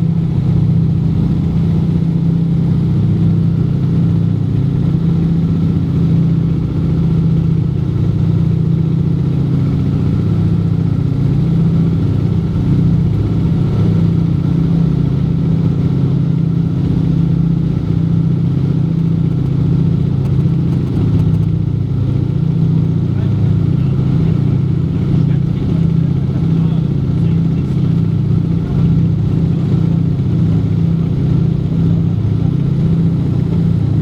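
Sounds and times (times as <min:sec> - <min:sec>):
radial aircraft engines droning: 0:00.0 - 0:34.0.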